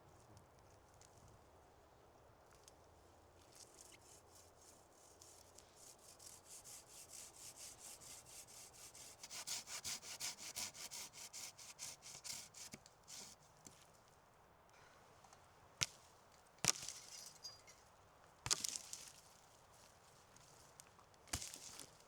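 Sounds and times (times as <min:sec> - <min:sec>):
hand saw cutting wood: 0:05.9 - 0:13.4.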